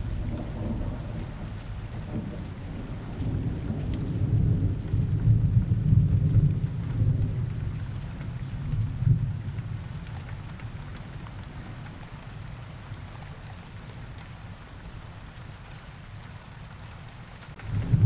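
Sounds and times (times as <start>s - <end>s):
low rumble of thunder: 0.0s - 12.2s, 17.6s - 18.0s
steady rain: 0.0s - 18.0s.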